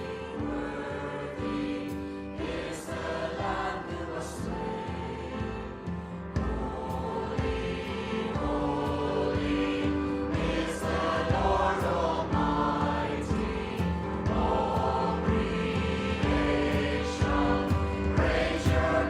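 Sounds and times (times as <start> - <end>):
group singing a hymn: 0.0 - 19.0.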